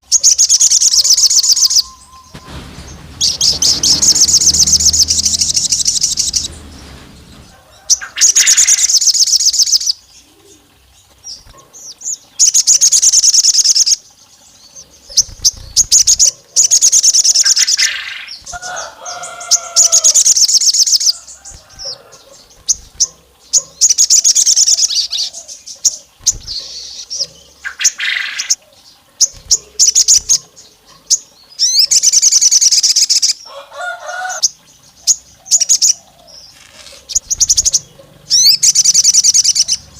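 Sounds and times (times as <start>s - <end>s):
songbird chattering trills: 35.0s - 39.9s.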